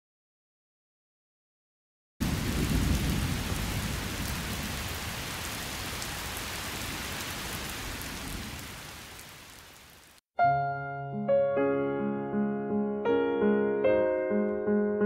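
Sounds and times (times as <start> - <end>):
rain hiss: 2.2 - 10.2.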